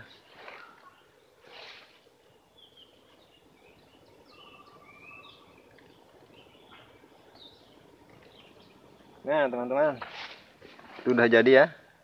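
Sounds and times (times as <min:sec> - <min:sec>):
small birds chirping and whistling: 0:00.0 - 0:08.8
brief rustle: 0:10.0 - 0:11.2.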